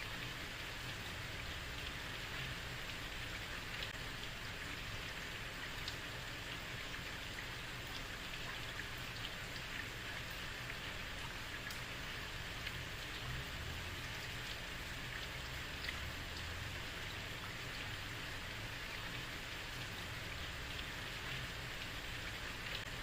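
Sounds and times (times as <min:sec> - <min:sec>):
heavy rain on a street: 0:00.0 - 0:23.0.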